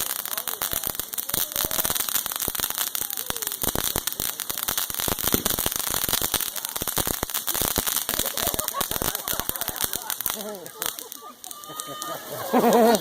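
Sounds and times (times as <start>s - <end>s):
firework crackling: 0.0s - 13.0s.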